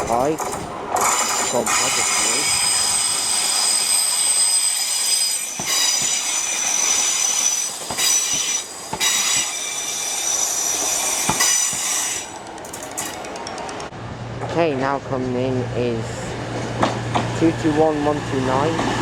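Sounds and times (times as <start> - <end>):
train wheels squealing on rails: 1.0 - 13.8.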